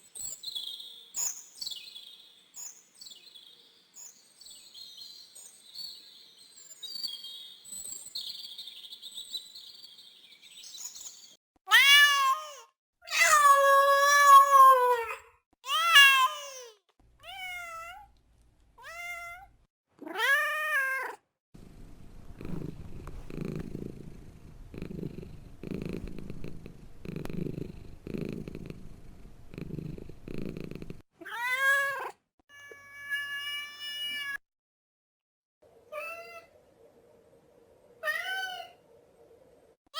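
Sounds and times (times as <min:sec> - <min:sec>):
cat meowing: 0:11.7 - 0:18.1, 0:18.8 - 0:21.2, 0:31.2 - 0:34.4
cat purring: 0:21.6 - 0:31.0.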